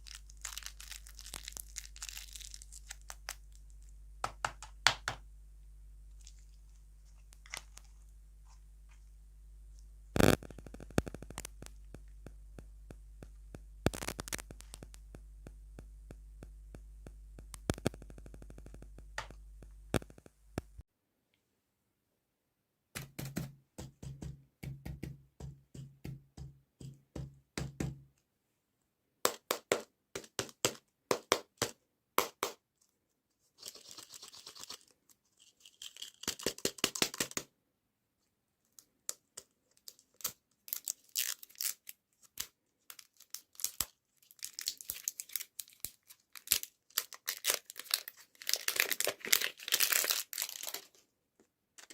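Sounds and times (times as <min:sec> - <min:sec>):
crinkling and tearing wrapper: 0:00.0 - 0:04.0, 0:06.1 - 0:08.1, 0:10.2 - 0:11.9, 0:13.9 - 0:15.0, 0:33.6 - 0:37.4, 0:38.8 - 0:51.0
taps and clicks: 0:10.2 - 0:20.8.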